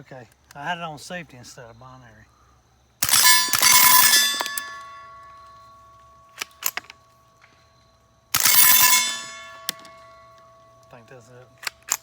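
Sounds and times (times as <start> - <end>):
suppressed rifle shots: 3.0 - 4.8, 8.3 - 10.1
steel targets clanging: 3.0 - 7.0, 8.3 - 12.0.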